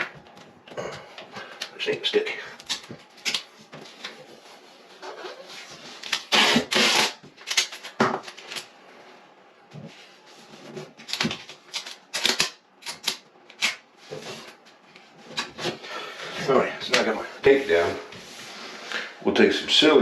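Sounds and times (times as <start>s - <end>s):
tape ripping off roll: 6.0s - 8.5s.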